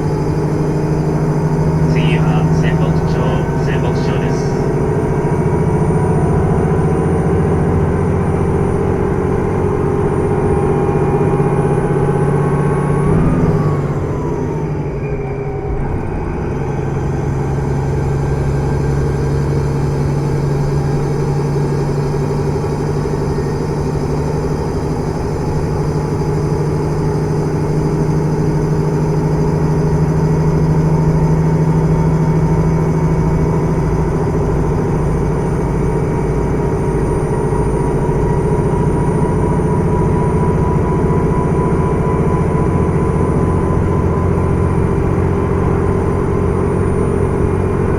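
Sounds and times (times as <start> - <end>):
train running noise: 0.0 - 11.3
diesel railcar engine drone: 0.0 - 47.9.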